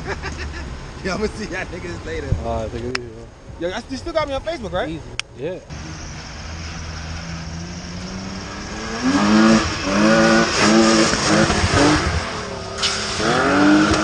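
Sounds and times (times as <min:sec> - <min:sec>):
car engine revving: 0:05.6 - 0:14.0.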